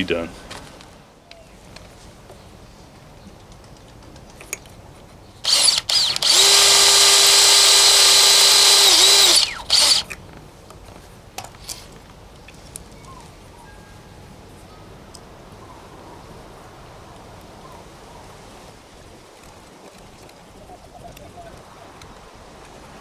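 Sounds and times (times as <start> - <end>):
power drill running: 5.4 - 10.2.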